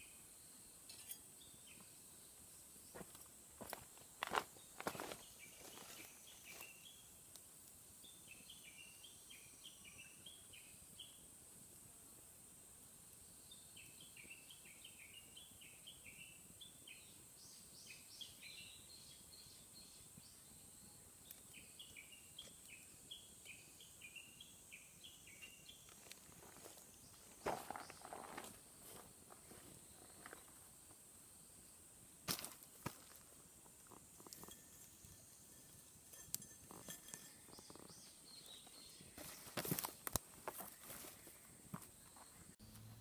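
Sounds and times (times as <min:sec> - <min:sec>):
steady high hiss: 0:00.0 - 0:42.8
bird chirping: 0:13.4 - 0:28.4, 0:34.4 - 0:39.8.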